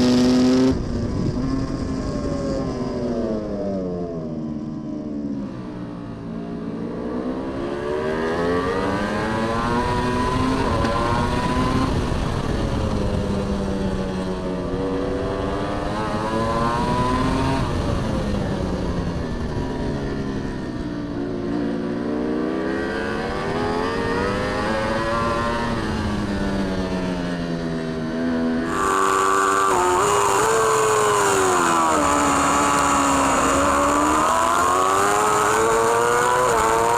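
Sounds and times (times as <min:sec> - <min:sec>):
superbike engine accelerating: 0:21.2 - 0:36.9.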